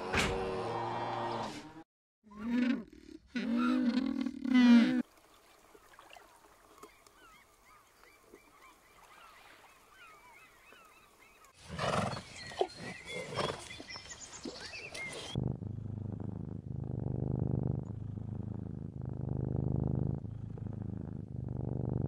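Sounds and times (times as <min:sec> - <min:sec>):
birds chirping: 0:06.8 - 0:15.4.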